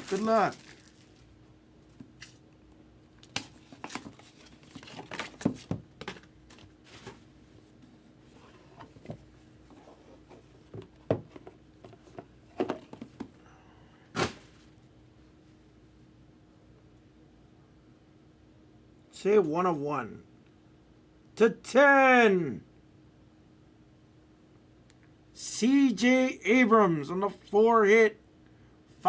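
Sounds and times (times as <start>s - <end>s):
packaging tearing and crinkling: 0.0s - 1.2s.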